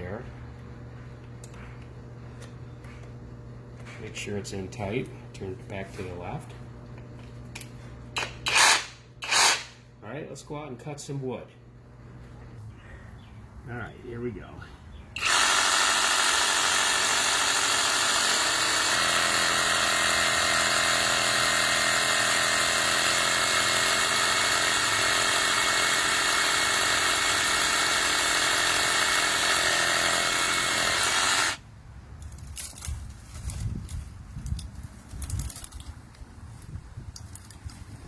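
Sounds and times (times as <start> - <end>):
reciprocating saw cutting branch: 8.2 - 9.7, 15.2 - 31.6.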